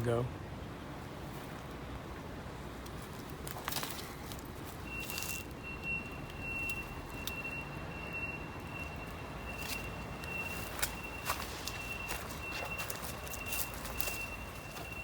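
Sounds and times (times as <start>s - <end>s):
footsteps through dry brush: 3.0s - 5.5s, 9.5s - 15.0s.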